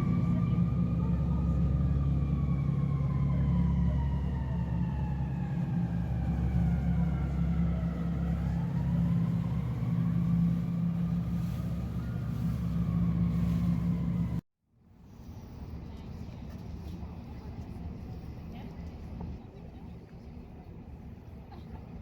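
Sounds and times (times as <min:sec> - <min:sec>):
heavy engine rumbling: 0:00.0 - 0:14.4.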